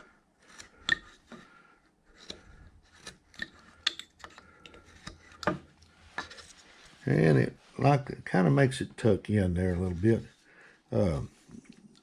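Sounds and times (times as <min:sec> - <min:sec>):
carving knife slicing wood: 0:00.0 - 0:01.4, 0:02.1 - 0:06.5.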